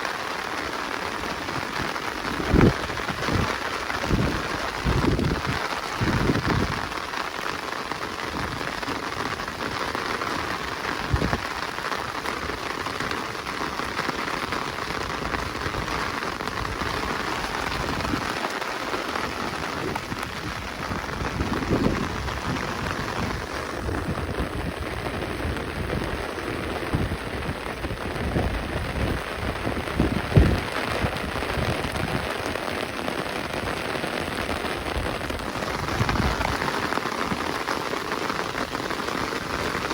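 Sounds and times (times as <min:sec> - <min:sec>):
rain on leaves: 0:00.0 - 0:39.9
low thuds: 0:30.0 - 0:30.6.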